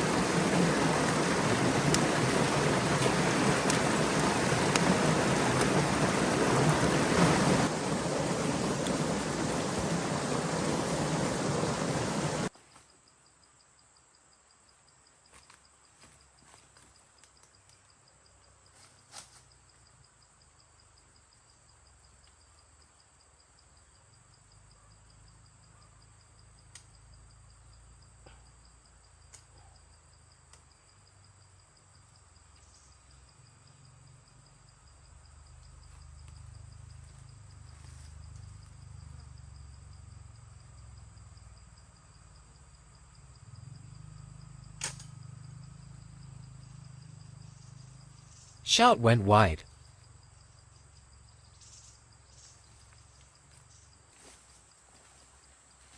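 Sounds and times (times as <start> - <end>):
insect chirring: 0.0 - 55.9
sharp snap of a shot: 44.8 - 45.2.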